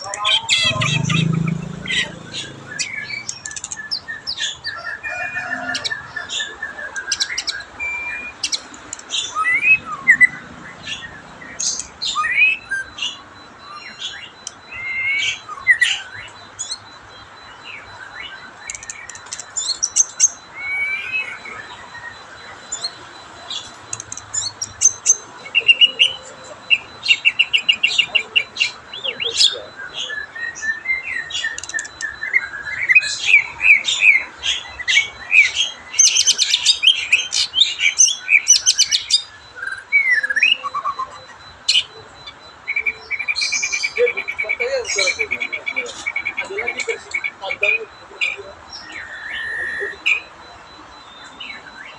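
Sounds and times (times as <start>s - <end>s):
bird singing whistled phrases: 6.4s - 8.6s, 20.6s - 22.2s.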